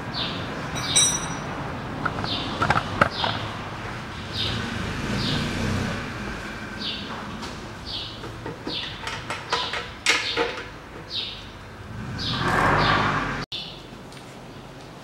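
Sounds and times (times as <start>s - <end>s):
bird chirping: 11.1s - 11.6s.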